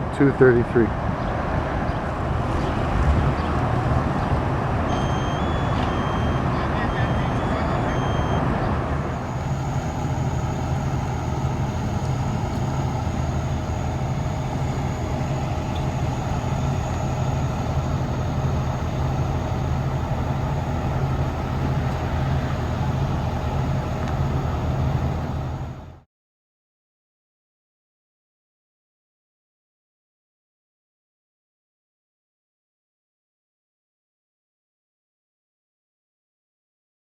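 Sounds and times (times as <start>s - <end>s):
diesel engine idling: 3.6s - 26.1s
faint steady whine: 4.9s - 26.1s.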